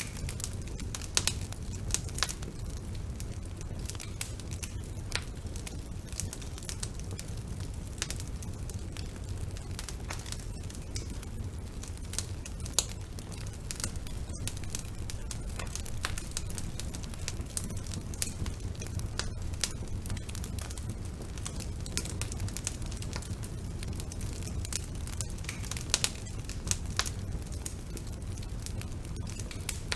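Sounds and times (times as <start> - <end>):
low rumble of flames: 0.0 - 29.9
wood fire crackling and popping: 0.0 - 29.9.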